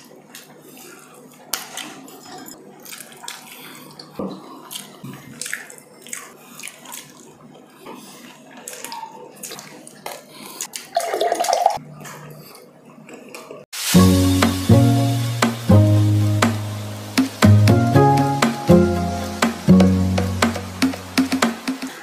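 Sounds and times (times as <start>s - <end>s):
chewing and mouth noises: 0.0s - 13.6s
small clicks of food: 2.8s - 7.4s.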